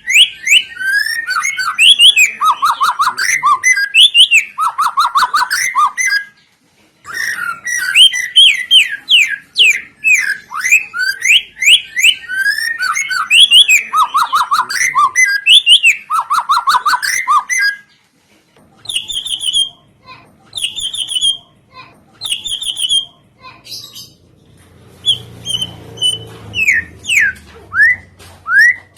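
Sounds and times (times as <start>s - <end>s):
songbird whistles and trills: 0.0s - 6.4s, 7.1s - 17.9s, 18.8s - 19.9s, 20.5s - 21.6s, 22.2s - 24.2s, 25.0s - 28.9s.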